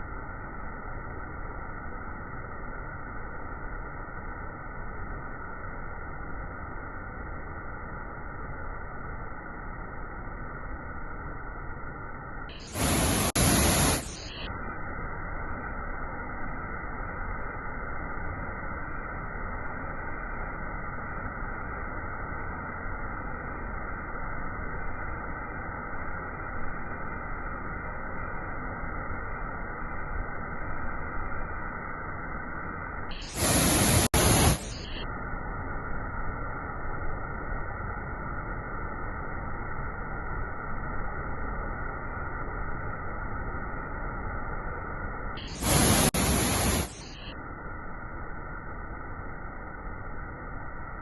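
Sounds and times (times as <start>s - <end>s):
loud bursts of hiss: 12.6s - 14.4s, 33.1s - 35.0s, 45.4s - 47.2s
waterfall rushing: 12.7s - 14.0s.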